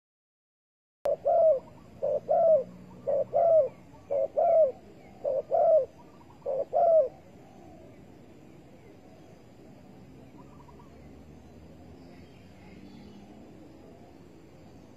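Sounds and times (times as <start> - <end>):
dove cooing: 1.1 - 9.6, 10.2 - 11.1.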